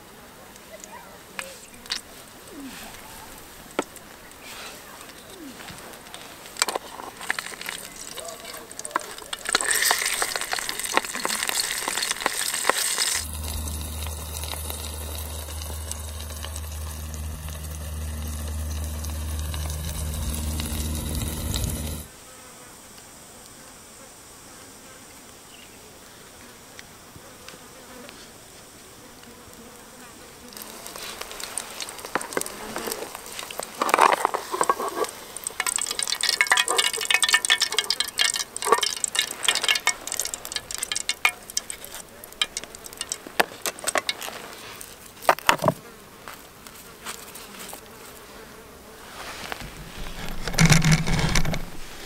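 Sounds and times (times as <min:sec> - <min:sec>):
crackles and clicks: 0:00.6 - 0:22.1, 0:30.5 - 0:45.8, 0:49.4 - 0:52.0
fly buzzing: 0:01.4 - 0:22.9, 0:27.3 - 0:52.0.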